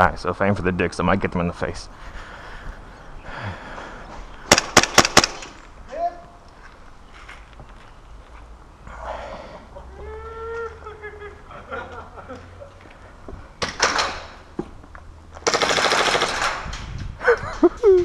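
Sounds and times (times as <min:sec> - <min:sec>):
airsoft gun firing: 0:04.5 - 0:05.6, 0:15.4 - 0:16.6
distant voice calling out: 0:05.9 - 0:06.4.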